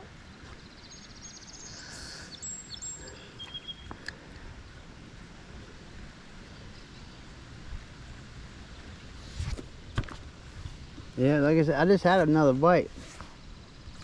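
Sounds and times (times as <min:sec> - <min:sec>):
bird trill: 0:00.8 - 0:04.0
high thin bird calls: 0:00.9 - 0:04.0.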